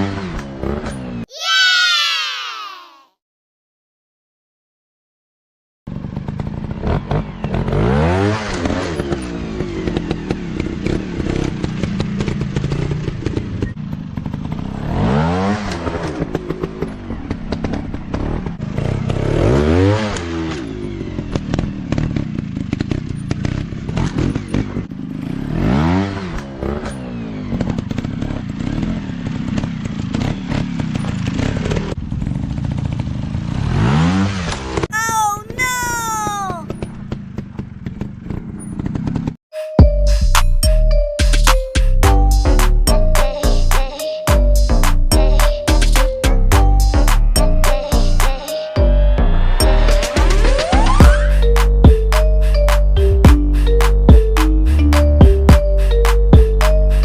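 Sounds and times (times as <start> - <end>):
dirt bike engine revving: 0.0 - 1.8, 5.9 - 32.0, 32.8 - 34.9.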